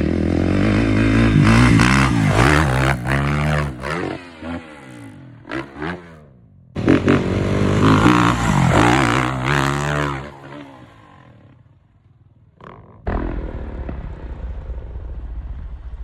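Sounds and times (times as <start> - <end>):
dirt bike engine revving: 0.0 - 11.6.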